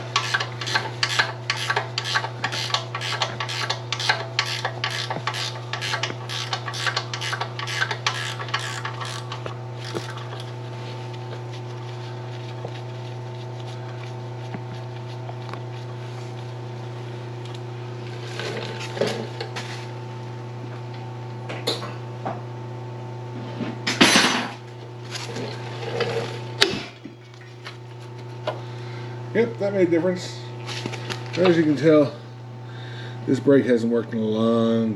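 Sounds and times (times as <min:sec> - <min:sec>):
hand tool rhythmic strokes: 0:00.0 - 0:10.5
machine hum: 0:00.0 - 0:20.8.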